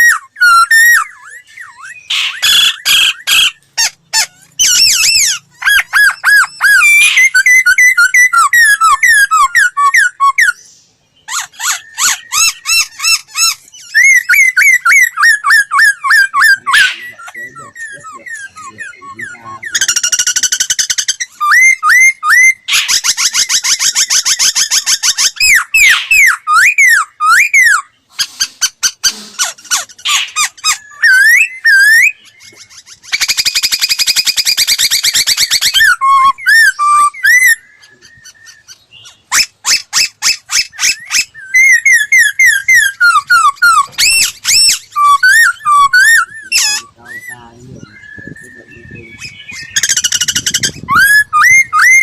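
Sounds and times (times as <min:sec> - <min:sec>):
bird singing varied song: 0:00.0 - 0:52.0.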